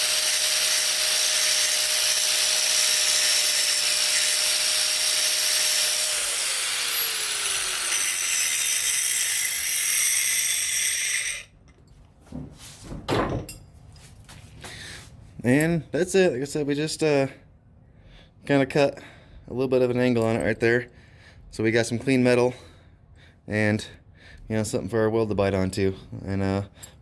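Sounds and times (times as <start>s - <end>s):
angle grinder grinding steel: 0.0s - 11.5s.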